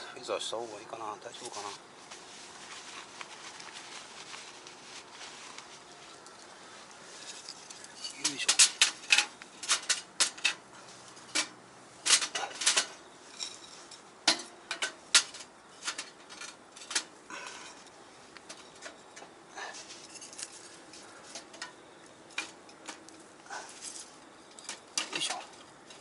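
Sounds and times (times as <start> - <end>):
kindling sticks knocking on metal: 14.2 - 17.1.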